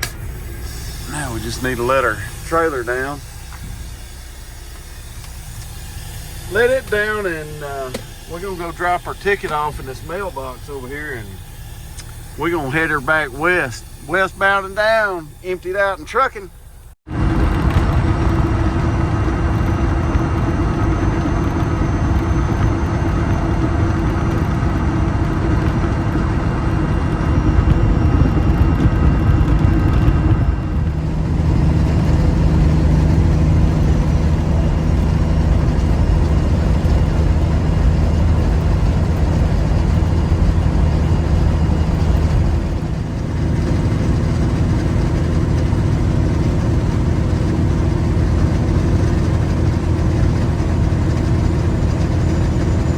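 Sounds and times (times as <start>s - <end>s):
truck diesel engine droning: 0.0s - 52.9s.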